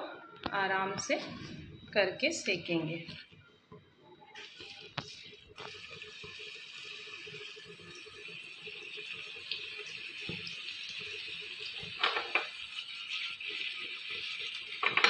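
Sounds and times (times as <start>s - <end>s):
kebabs sizzling in a grill pan: 4.4s - 15.0s.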